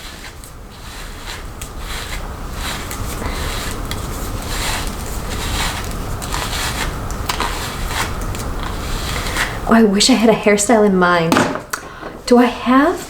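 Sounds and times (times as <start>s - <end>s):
hairbrush swishing through hair: 0.0s - 9.6s.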